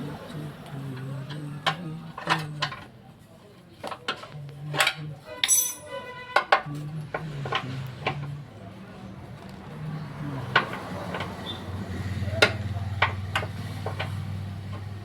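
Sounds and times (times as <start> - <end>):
metal hand tools clinking: 4.7 - 6.0
ringing metal ping: 5.4 - 5.9.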